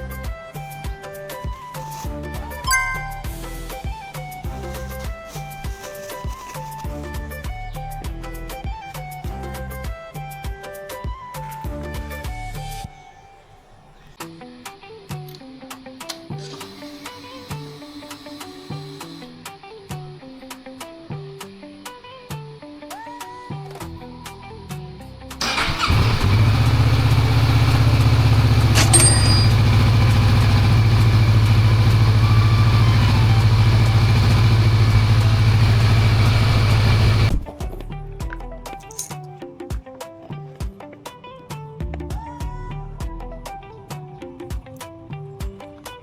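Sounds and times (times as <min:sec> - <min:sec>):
plucked notes music: 0:02.6 - 0:03.7
motorcycle engine starting and idling: 0:25.4 - 0:37.5
sharp metallic click: 0:28.7 - 0:29.8.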